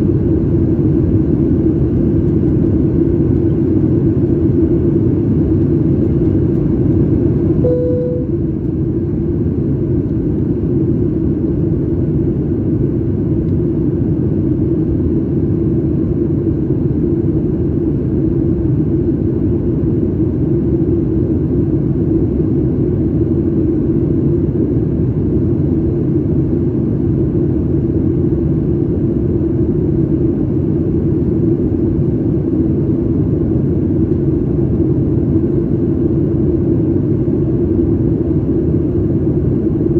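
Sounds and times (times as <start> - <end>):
airplane cabin engine rumble: 0.0 - 39.9
single tone: 7.6 - 8.4.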